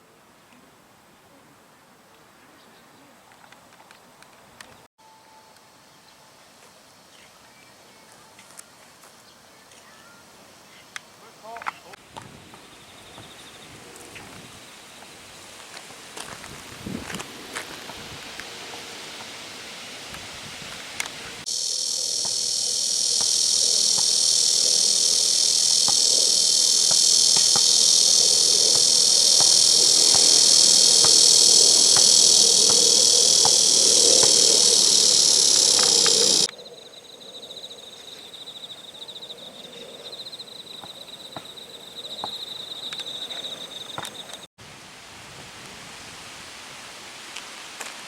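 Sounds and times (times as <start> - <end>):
chorus of insects buzzing: 21.4 - 39.1
single high insect trill: 21.5 - 44.5.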